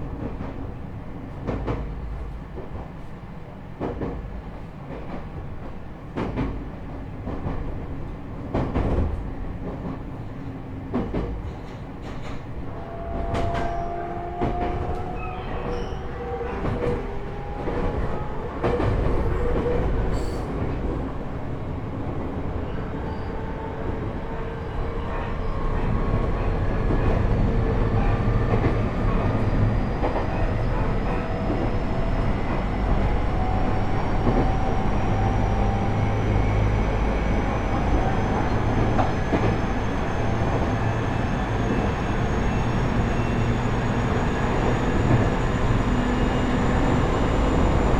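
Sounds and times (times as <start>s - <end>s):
train rumble: 0.0s - 47.9s
rail-joint clicks: 10.9s - 21.2s.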